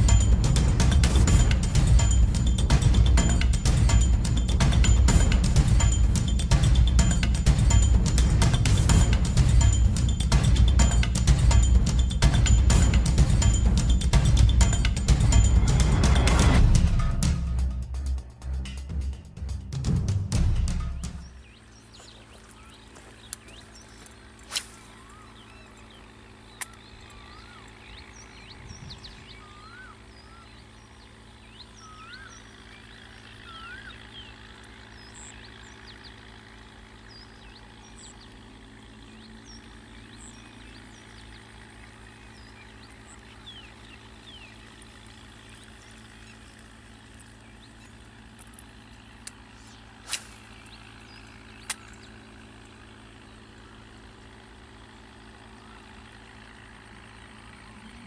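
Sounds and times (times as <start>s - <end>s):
steady low hum: 0.0s - 58.0s
small birds chirping: 20.7s - 58.0s
sharp clicks: 26.5s - 27.2s, 51.6s - 52.1s.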